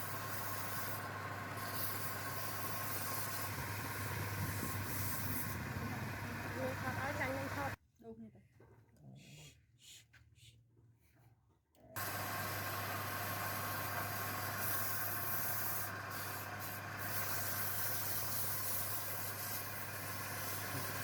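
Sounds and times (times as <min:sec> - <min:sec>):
machine motor running: 0:00.0 - 0:07.8, 0:12.0 - 0:21.0.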